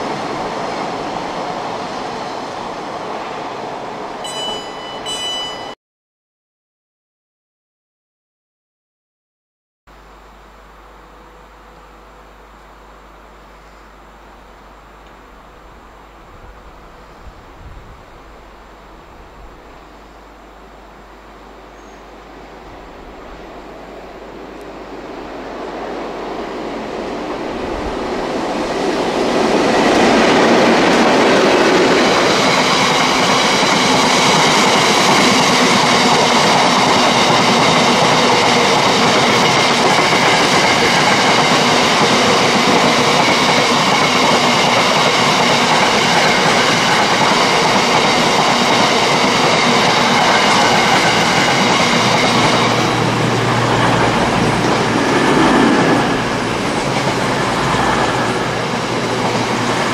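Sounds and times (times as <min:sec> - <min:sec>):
freight train rumbling and rattling: 0:00.0 - 0:05.7, 0:14.4 - 0:59.9
high-pitched tones: 0:04.2 - 0:05.8.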